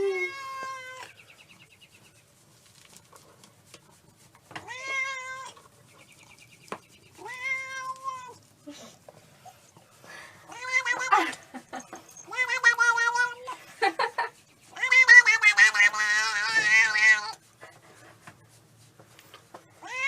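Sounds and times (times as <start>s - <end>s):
cat meowing: 0.0s - 1.1s, 4.6s - 5.6s, 7.2s - 8.4s, 10.5s - 11.2s, 12.3s - 13.5s, 14.8s - 17.4s, 19.8s - 20.0s.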